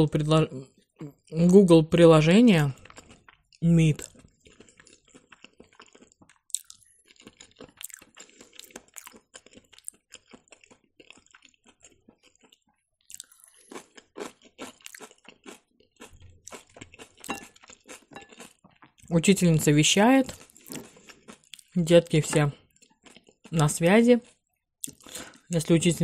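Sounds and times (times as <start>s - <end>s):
crunching bites of cabbage: 2.7s - 19.1s, 20.3s - 21.8s
chewing with wet clicks: 2.7s - 19.2s, 20.2s - 21.8s, 22.5s - 25.4s.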